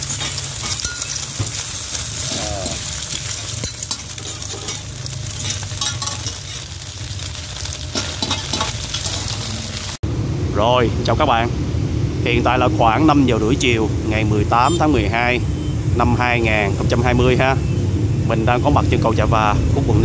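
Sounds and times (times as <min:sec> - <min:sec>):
metal spatula scraping pan: 0:00.0 - 0:01.6, 0:02.2 - 0:06.7, 0:07.9 - 0:09.7
food sizzling in oil: 0:00.0 - 0:10.0.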